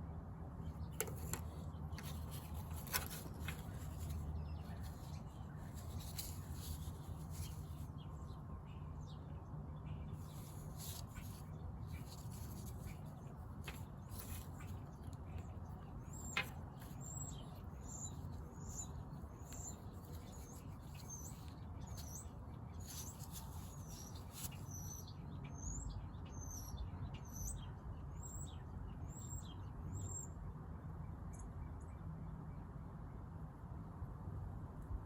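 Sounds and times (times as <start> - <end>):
small bird chirping: 0.6 - 30.4.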